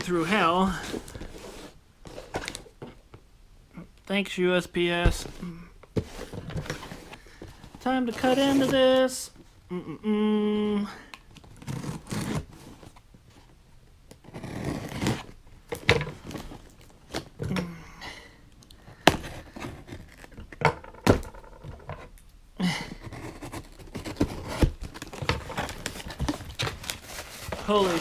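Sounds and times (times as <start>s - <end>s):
tape tearing and packing crinkling: 11.3s - 13.0s, 23.2s - 28.0s.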